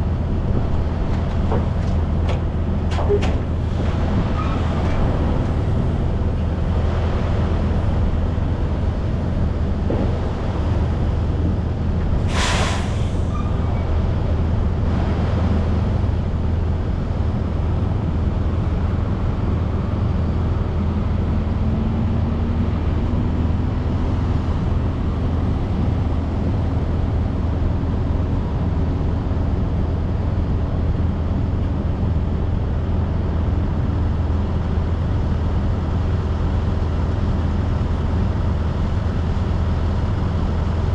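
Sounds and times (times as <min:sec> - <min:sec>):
road noise: 0:00.0 - 0:40.9
truck diesel engine drone: 0:00.0 - 0:40.9
air hissing: 0:12.2 - 0:13.7.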